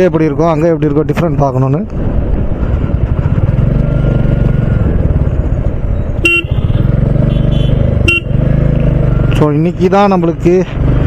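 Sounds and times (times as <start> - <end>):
motorcycle engine running: 2.4 - 11.0
vehicle horn beep: 6.2 - 8.4.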